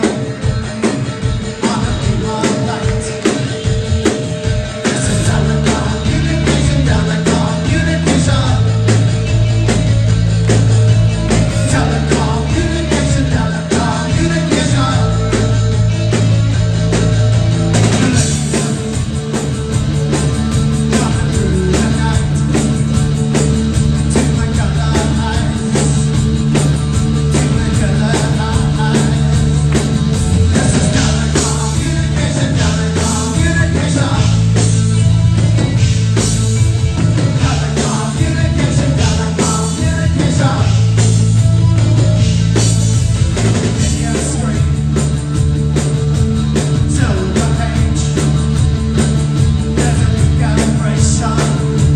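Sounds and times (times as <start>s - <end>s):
bass: 0.0s - 51.9s
drum beat: 0.0s - 51.9s
live band playing rock: 0.0s - 51.9s.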